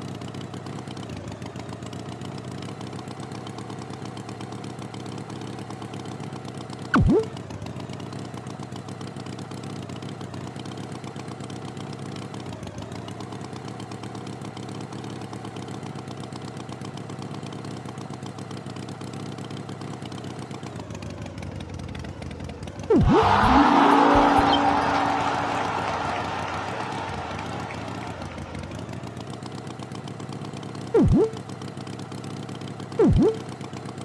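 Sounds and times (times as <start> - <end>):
loud sliding tone: 7.0 - 7.3, 22.9 - 28.8, 31.0 - 31.4, 33.0 - 33.4.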